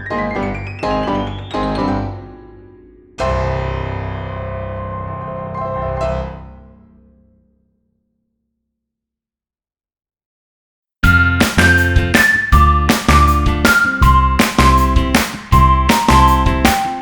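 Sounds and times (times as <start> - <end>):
piano chords: 0.0 - 7.5, 11.0 - 17.0.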